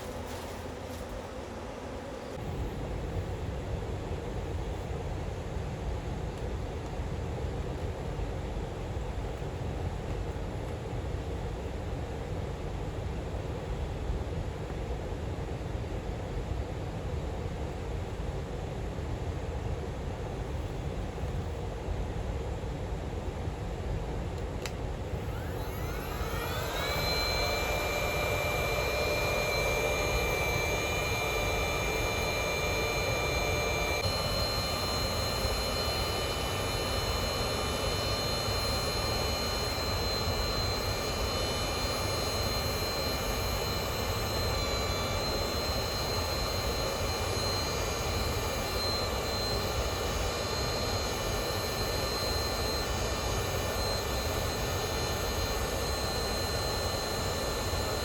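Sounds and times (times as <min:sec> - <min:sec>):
motor whining: 0:25.1 - 0:58.0.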